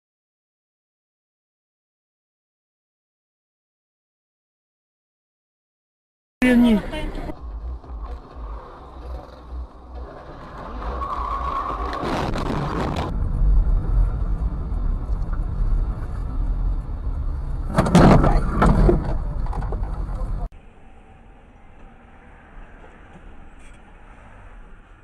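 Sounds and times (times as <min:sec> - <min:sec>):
car engine and road rumble: 0:06.4 - 0:25.0.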